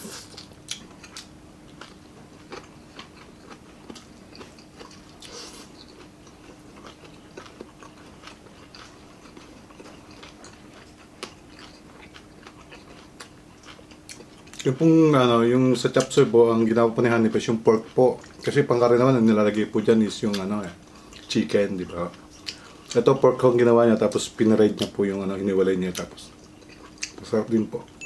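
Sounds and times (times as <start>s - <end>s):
faint steady hum: 0.0s - 28.0s
people chewing food: 0.0s - 28.0s.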